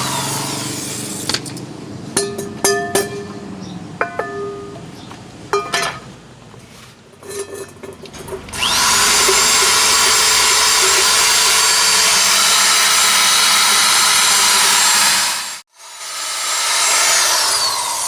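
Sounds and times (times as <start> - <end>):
power tool grinding: 0.0 - 1.5, 7.5 - 18.0.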